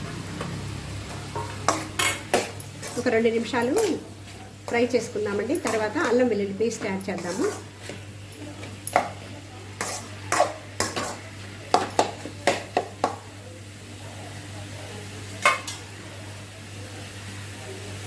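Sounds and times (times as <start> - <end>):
faint sizzle: 0.0 - 18.0
spoon scraping and knocking a pan: 1.2 - 13.2.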